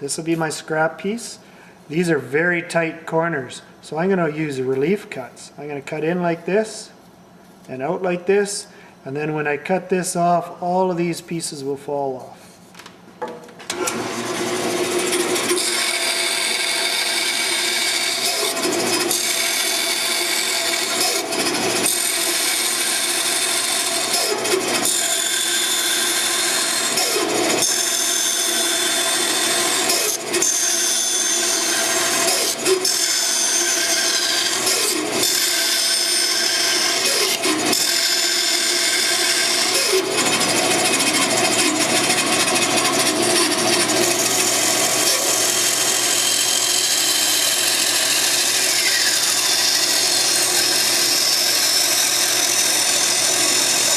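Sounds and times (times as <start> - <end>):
bandsaw cutting wood: 13.7 - 53.9
bandsaw running: 13.7 - 53.9.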